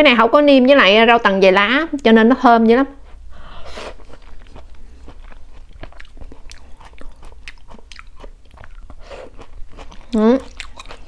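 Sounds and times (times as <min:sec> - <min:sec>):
person chewing with wet smacks: 0:03.8 - 0:11.0.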